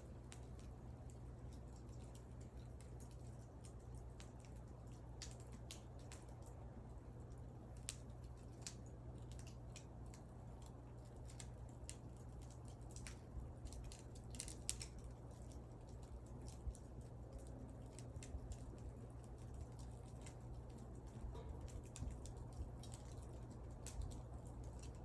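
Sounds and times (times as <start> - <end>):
burning wood crackling: 0.0 - 25.0
faint low rumble: 0.0 - 25.0.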